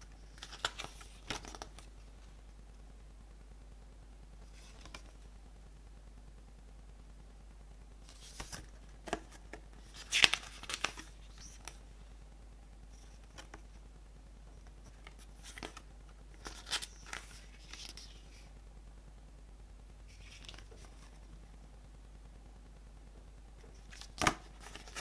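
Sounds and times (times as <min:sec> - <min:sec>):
packaging crinkling rustle: 0:00.3 - 0:01.9, 0:14.9 - 0:18.5, 0:23.8 - 0:25.0.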